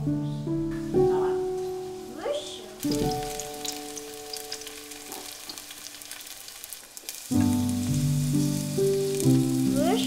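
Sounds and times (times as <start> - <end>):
background music: 0.0 - 6.4, 7.0 - 10.0
pancakes sizzling in oil: 1.1 - 10.0.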